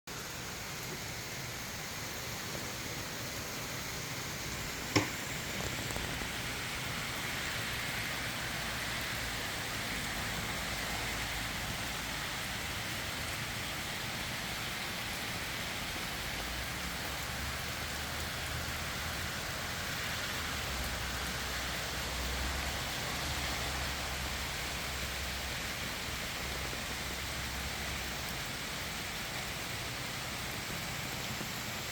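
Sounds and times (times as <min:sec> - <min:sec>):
rain falling: 0:00.1 - 0:31.9
sharp knock: 0:04.9 - 0:05.2.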